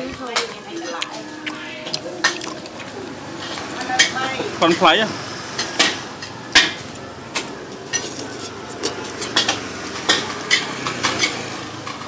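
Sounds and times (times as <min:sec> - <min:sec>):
metal utensils clinking on dishes: 0:00.0 - 0:05.0, 0:05.6 - 0:12.0
steady background hum: 0:00.0 - 0:09.5.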